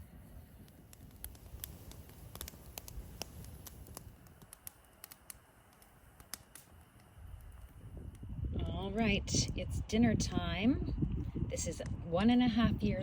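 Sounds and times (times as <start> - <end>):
campfire crackling and popping: 0.0 - 10.4.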